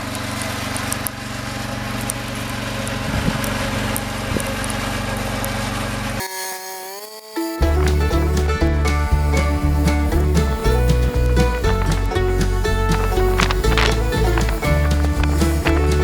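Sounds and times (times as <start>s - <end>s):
music: 7.4s - 16.0s
vehicle engine running: 7.6s - 16.0s.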